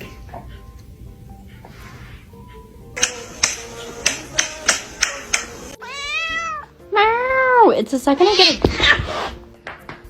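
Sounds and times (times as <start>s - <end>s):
background music: 0.0s - 10.0s
sharp snap-like clicks: 3.0s - 5.6s.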